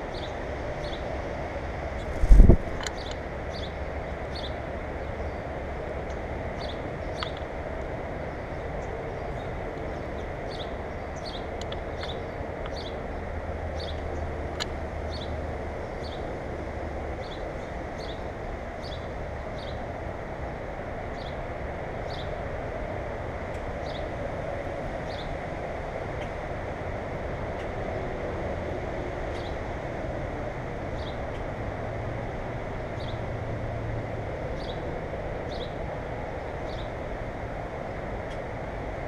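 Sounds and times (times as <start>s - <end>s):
small bird chirping: 2.0s - 3.7s.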